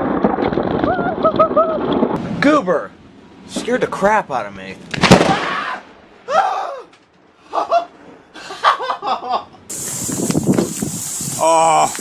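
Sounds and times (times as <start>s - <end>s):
person laughing: 1.0s - 1.9s, 7.4s - 9.6s
steady hiss: 9.7s - 12.0s.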